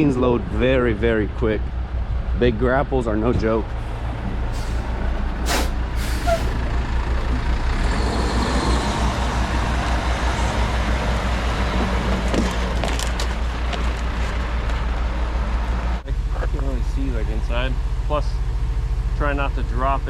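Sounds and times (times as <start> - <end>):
dump truck diesel engine running: 3.2 - 19.2
air brake hisses: 4.5 - 6.6.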